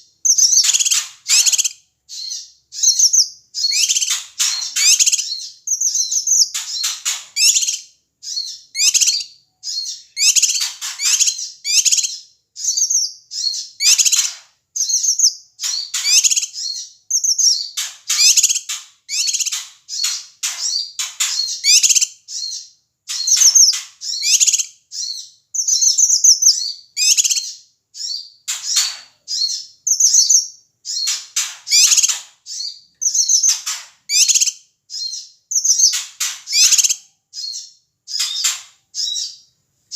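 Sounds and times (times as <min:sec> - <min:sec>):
bird chattering call: 0:00.3 - 0:05.4.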